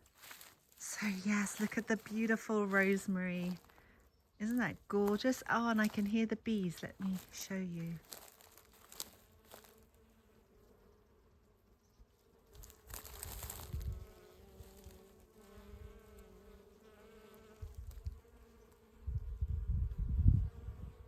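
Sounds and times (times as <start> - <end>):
bees buzzing: 0.8 - 8.0, 12.5 - 19.2.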